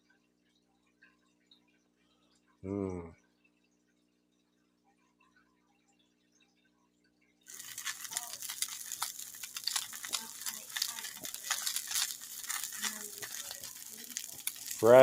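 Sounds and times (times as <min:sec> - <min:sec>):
food sizzling in frying pan: 0:07.5 - 0:15.0.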